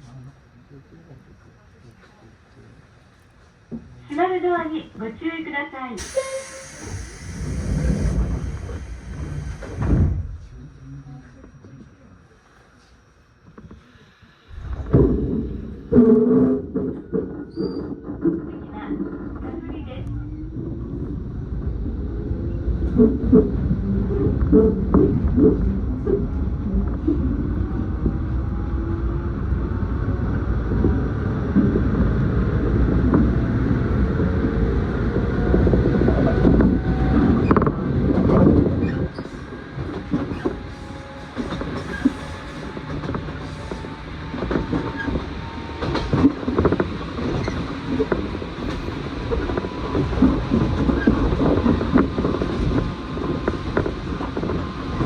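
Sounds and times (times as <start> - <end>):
train rumble: 0.0 - 55.0
electric train motor whine: 20.0 - 55.0.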